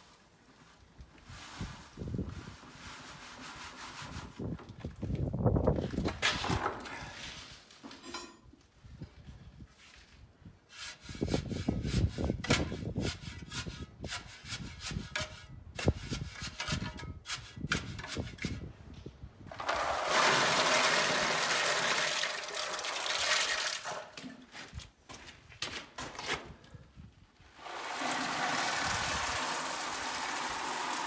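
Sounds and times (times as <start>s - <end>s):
knocks and scrapes: 1.6s - 20.7s
flowing water rushing: 27.7s - 31.0s.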